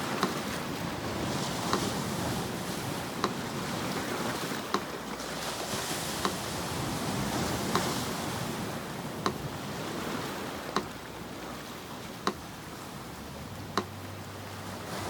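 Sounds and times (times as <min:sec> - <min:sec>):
sea surf washing ashore: 0:00.0 - 0:15.0
metronome ticking: 0:01.6 - 0:05.0, 0:07.6 - 0:07.9, 0:09.2 - 0:09.6, 0:10.6 - 0:11.4, 0:12.2 - 0:14.4.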